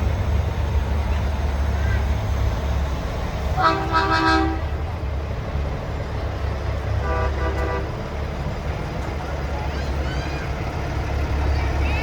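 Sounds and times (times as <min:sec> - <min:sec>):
low diesel rumble: 0:00.0 - 0:12.0
truck air horn: 0:03.6 - 0:04.7, 0:07.0 - 0:08.0.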